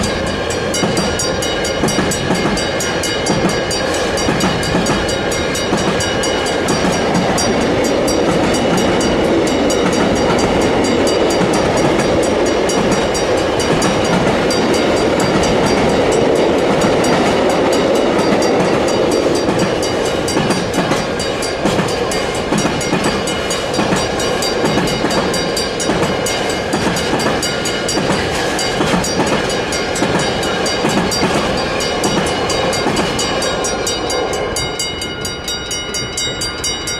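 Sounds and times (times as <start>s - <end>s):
freight train rumbling and rattling: 0.0s - 36.9s
wheels clicking over rail joints: 0.0s - 36.9s.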